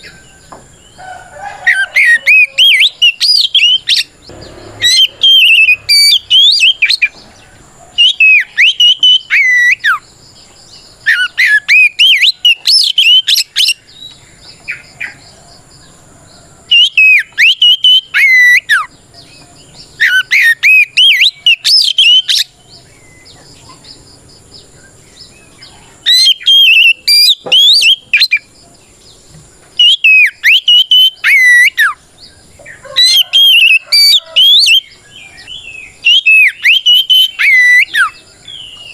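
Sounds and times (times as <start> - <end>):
bird singing whistled phrases: 1.7 - 4.1, 4.8 - 7.2, 8.0 - 10.0, 11.0 - 15.2, 16.7 - 18.9, 20.0 - 22.5, 26.1 - 28.5, 29.8 - 32.0, 32.9 - 38.9.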